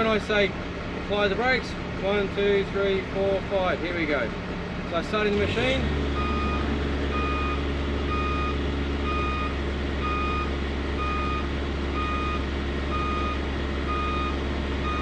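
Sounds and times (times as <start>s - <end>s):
roller brake tester humming: 5.9s - 15.0s.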